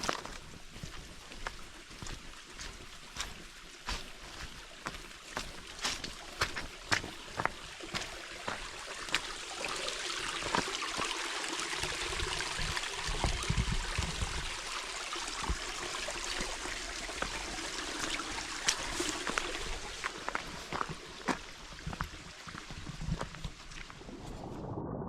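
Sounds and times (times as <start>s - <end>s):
small stream running: 0.0s - 24.4s.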